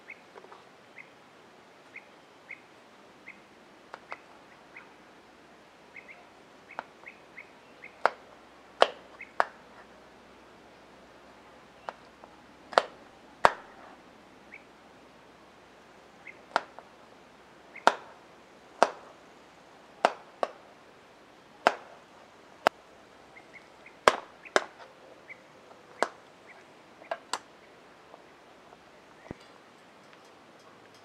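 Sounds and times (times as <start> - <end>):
sharp chopping knocks: 18.8 - 19.1.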